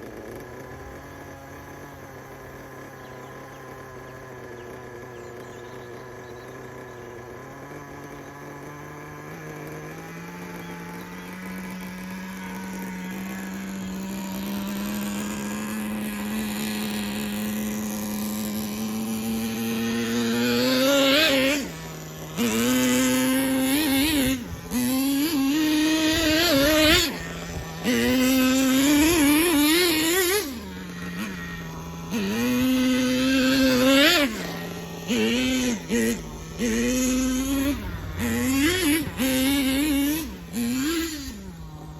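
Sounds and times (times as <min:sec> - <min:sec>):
small model engine idling and revving: 0:00.0 - 0:41.9.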